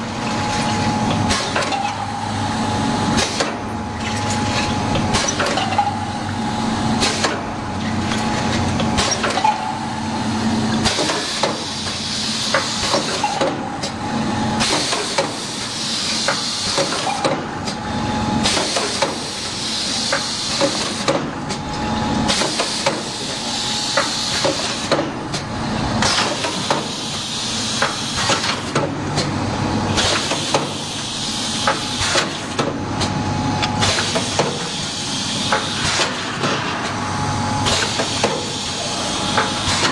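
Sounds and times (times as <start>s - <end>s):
machine clacking and knocking: 0.7s - 2.1s, 4.2s - 6.0s, 7.0s - 7.5s, 10.8s - 14.0s, 14.6s - 15.5s, 16.2s - 17.8s, 18.4s - 19.4s, 20.1s - 21.6s, 22.3s - 23.3s, 23.9s - 27.0s, 37.6s - 38.5s.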